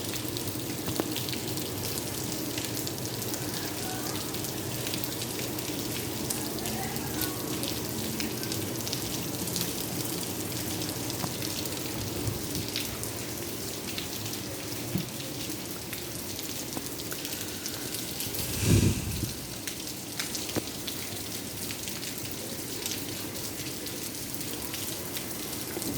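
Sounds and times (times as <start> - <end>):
steady rain hiss: 0.0 - 25.9
raindrops ticking: 0.1 - 18.4.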